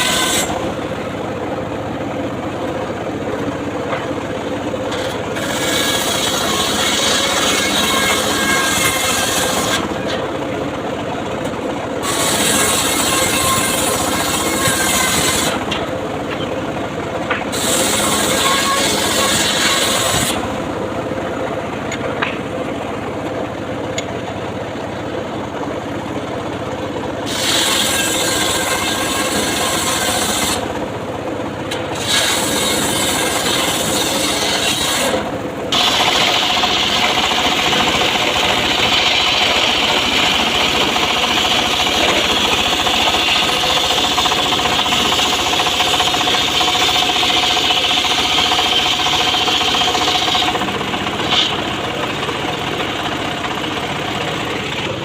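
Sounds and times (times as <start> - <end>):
circular saw cutting wood: 0.0 - 1.2, 3.8 - 10.6, 11.4 - 16.6, 17.2 - 20.8, 27.2 - 30.8, 31.6 - 55.0.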